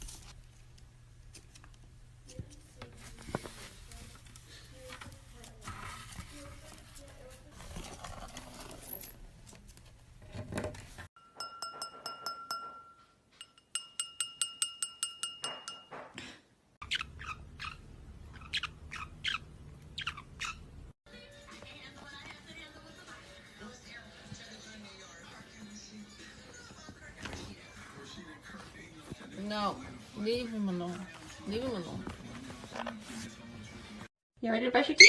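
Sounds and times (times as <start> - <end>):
parrot chirping: 16.8 - 20.9.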